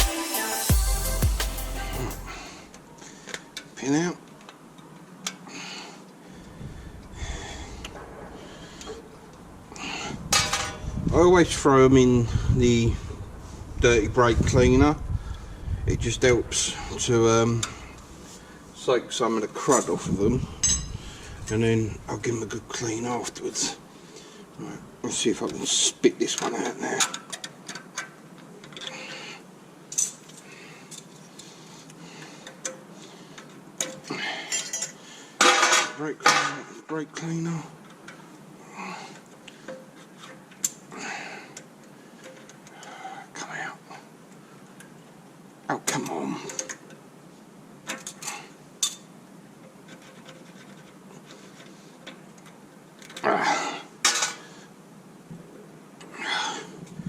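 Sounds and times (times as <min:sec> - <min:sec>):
hand tools clinking on metal: 0:20.6 - 0:21.0, 0:33.8 - 0:36.6
small metal clicks: 0:41.6 - 0:42.9.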